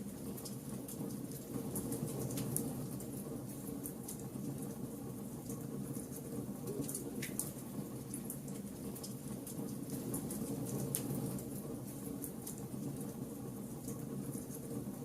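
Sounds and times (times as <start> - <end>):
wood fire crackling and popping: 5.4 - 13.2.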